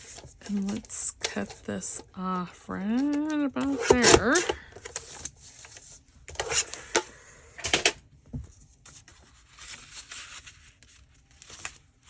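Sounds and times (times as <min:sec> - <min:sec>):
paper handling: 0:00.0 - 0:02.0, 0:08.4 - 0:12.0
scissors cutting paper: 0:02.9 - 0:04.6.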